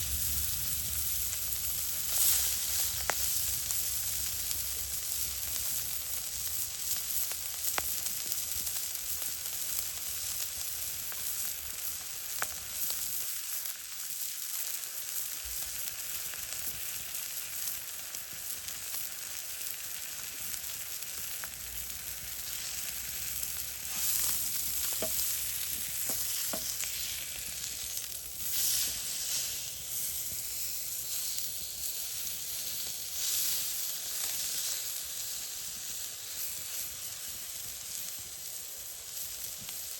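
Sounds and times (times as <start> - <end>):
fire pops: 0.0 - 5.6, 22.8 - 31.6
food sizzling over fire: 0.0 - 39.9.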